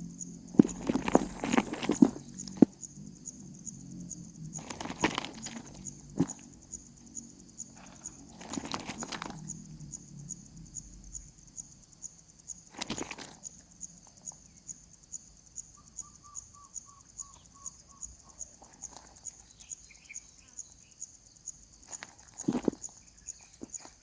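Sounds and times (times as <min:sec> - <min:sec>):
rustling knocks: 0:00.5 - 0:02.7
insect chirping high pitch: 0:13.4 - 0:21.9.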